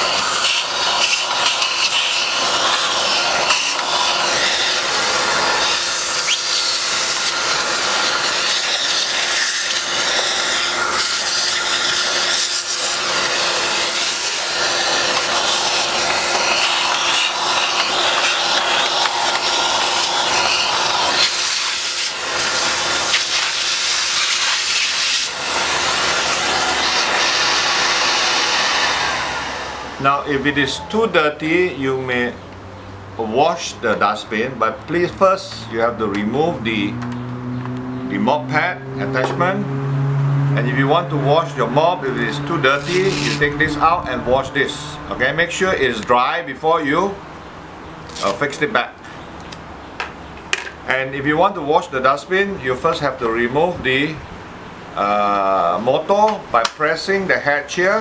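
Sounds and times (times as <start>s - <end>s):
vacuum cleaner running: 0.0s - 31.4s, 37.0s - 45.5s.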